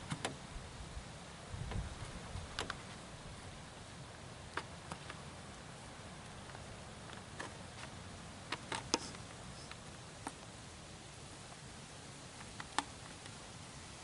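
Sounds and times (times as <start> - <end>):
faint steady hiss: 0.0 - 14.0
sharp clicks: 4.5 - 5.2, 12.3 - 13.4.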